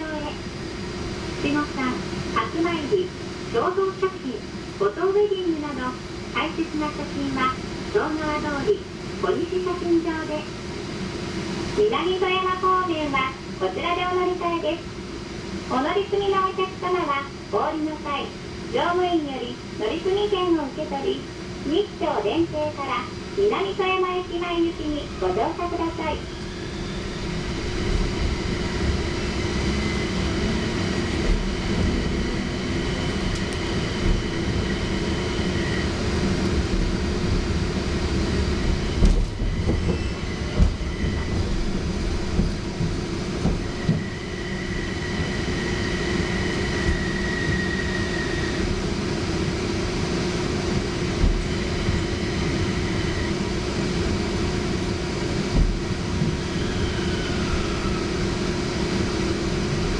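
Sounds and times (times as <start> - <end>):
tram motor hum: 19.7 - 59.9.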